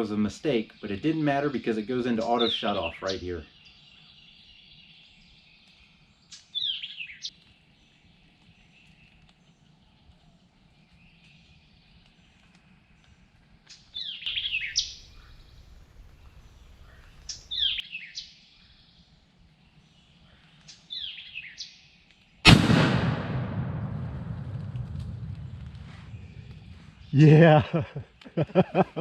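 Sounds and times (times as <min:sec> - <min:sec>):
bird chirping: 0:00.4 - 0:10.1, 0:13.7 - 0:22.4
shotgun blast with echo: 0:22.5 - 0:26.4.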